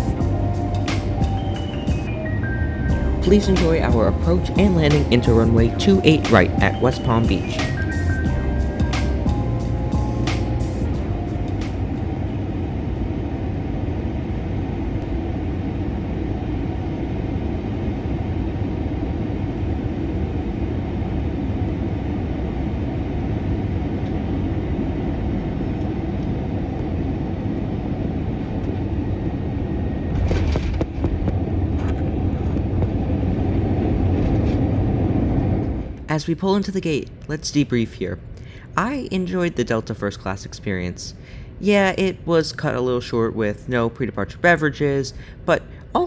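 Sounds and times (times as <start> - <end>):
airliner cabin rumble: 0.0 - 36.2.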